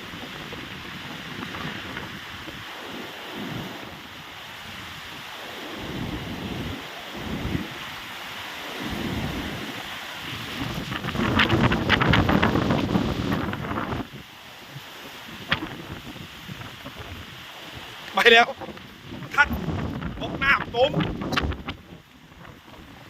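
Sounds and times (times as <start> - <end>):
strong storm wind gusting: 0.0 - 23.0
wind buffeting microphone: 0.0 - 23.0
dense crackling rattling noise: 10.6 - 14.0, 15.5 - 16.0, 18.1 - 23.0.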